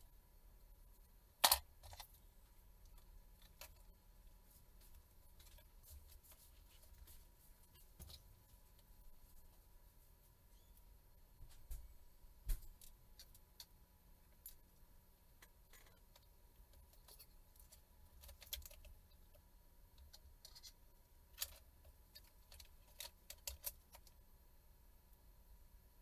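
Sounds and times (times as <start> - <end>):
small tools clicking and tapping: 15.4 - 19.0, 21.4 - 24.2.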